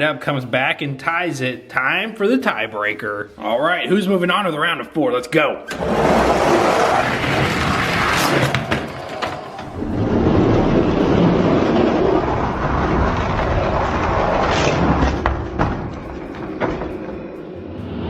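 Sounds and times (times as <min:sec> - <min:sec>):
toy trucks rumbling on track: 0:05.7 - 0:17.0.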